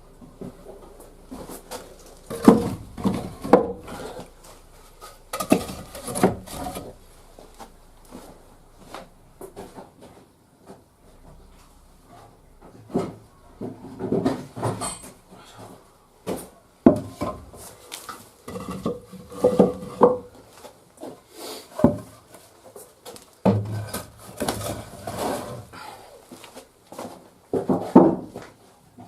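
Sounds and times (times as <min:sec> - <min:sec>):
firewood logs knocking together: 0:00.2 - 0:10.0, 0:12.2 - 0:21.2, 0:27.0 - 0:28.6.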